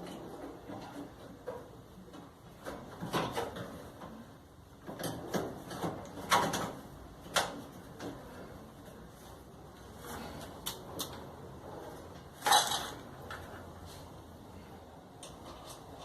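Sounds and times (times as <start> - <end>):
knocks and clunks of dryer parts: 0.0 - 8.5.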